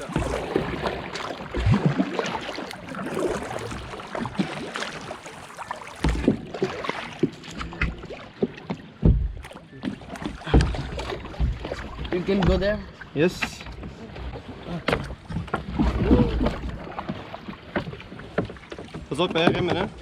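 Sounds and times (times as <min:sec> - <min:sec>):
paddle strokes splashing water: 0:00.0 - 0:20.0
dull low thuds: 0:08.8 - 0:09.5, 0:10.4 - 0:12.8.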